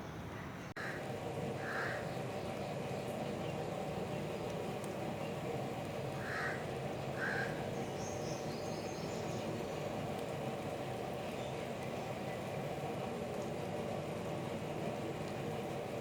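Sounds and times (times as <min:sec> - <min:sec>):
crow cawing: 0:00.8 - 0:01.0, 0:01.6 - 0:02.1, 0:06.2 - 0:07.6
steady rain falling: 0:01.0 - 0:16.0.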